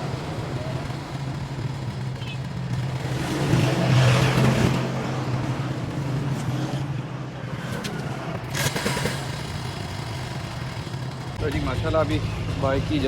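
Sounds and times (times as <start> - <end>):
motorcycle engine idling: 0.0 - 3.4, 8.4 - 13.0.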